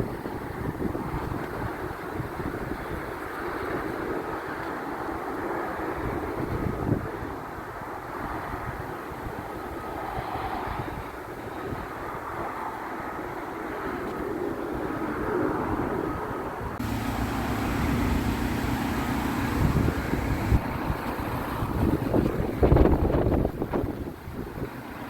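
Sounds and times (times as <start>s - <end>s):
garbage truck engine running: 16.8s - 25.0s
steady low hum: 16.8s - 25.0s.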